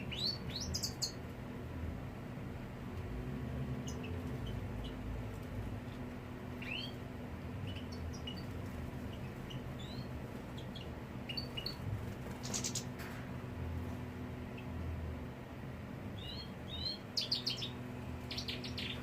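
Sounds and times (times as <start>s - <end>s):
finches chirping: 0.0s - 1.2s, 6.6s - 7.0s, 7.6s - 11.8s, 12.4s - 12.9s, 16.2s - 19.0s
steady low hum: 0.0s - 19.0s.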